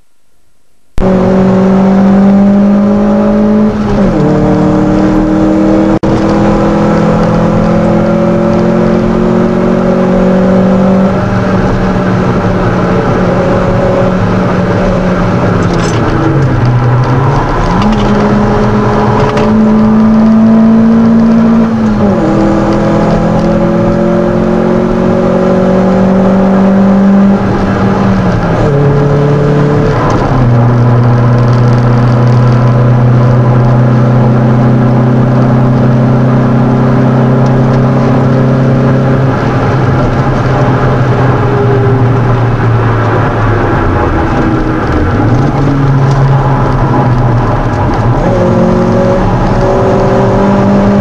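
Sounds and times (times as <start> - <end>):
car engine under load: 0.0 - 51.0.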